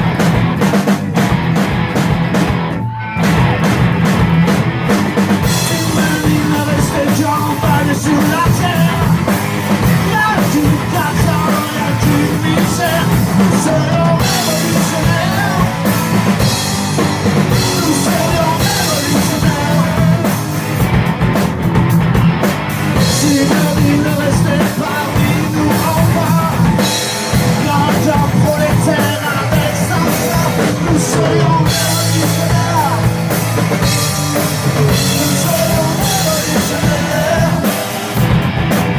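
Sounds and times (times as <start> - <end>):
drum kit: 0.0 - 38.9
rock band playing: 0.0 - 38.9
person singing: 5.4 - 20.8, 23.0 - 38.4.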